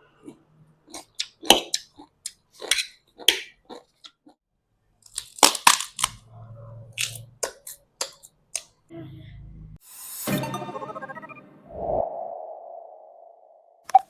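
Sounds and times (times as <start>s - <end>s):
crisp crunching bites: 5.0s - 6.2s.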